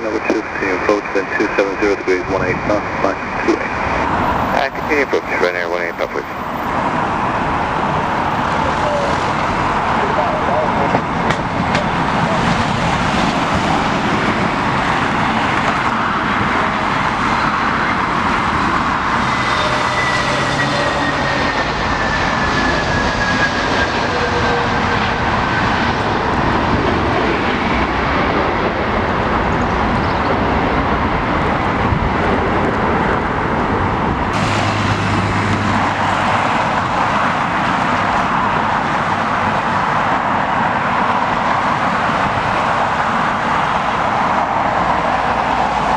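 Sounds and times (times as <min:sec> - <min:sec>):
jet airliner engines passing: 0:00.0 - 0:45.9
wind rumble on microphone: 0:21.2 - 0:45.9.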